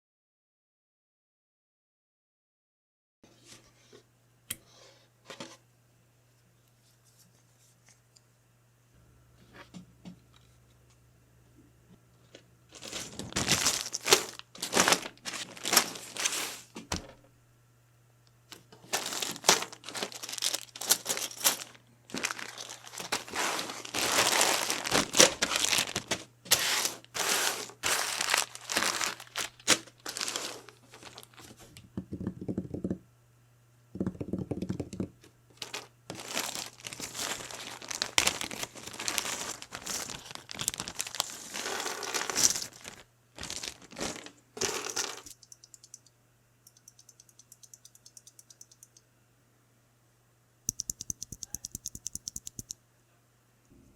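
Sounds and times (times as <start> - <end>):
packaging crinkling and tearing: 12.8 - 16.7, 18.8 - 31.6, 35.6 - 45.0.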